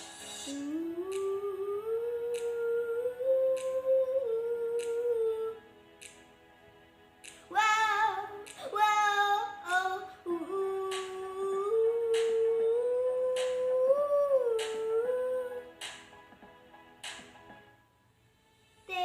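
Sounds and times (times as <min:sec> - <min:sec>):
woman humming a melody: 0:00.5 - 0:05.6, 0:10.3 - 0:15.6
light sharp clicks keeping time: 0:00.9 - 0:01.5, 0:02.2 - 0:02.7, 0:03.5 - 0:03.9, 0:04.7 - 0:05.2.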